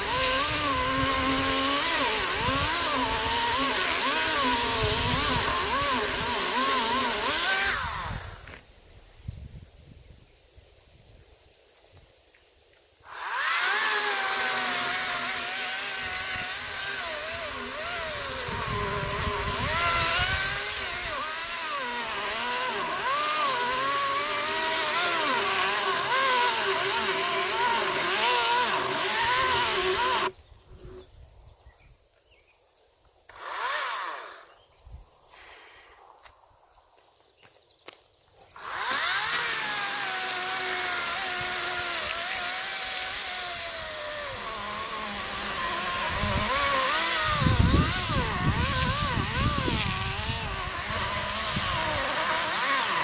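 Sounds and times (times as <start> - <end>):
electric chainsaw cutting log: 0.0 - 8.6, 13.0 - 30.4, 33.3 - 34.6, 38.6 - 53.0.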